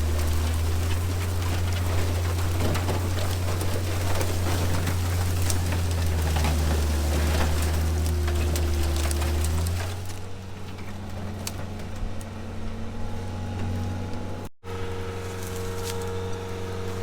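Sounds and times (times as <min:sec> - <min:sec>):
motor humming: 0:07.6 - 0:17.0.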